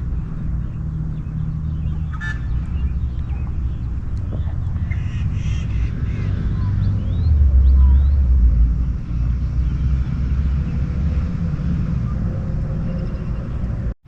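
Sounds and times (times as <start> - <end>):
low outdoor rumble: 0.0 - 14.0
short bird calls: 1.8 - 6.8.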